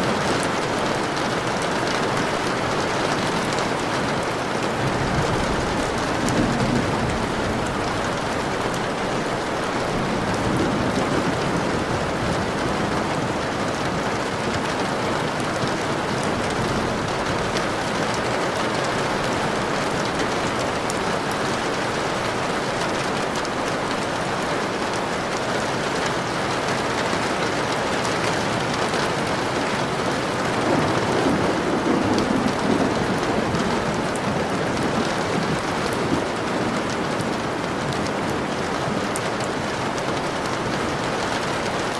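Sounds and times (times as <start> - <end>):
steady rain hiss: 0.0 - 41.9.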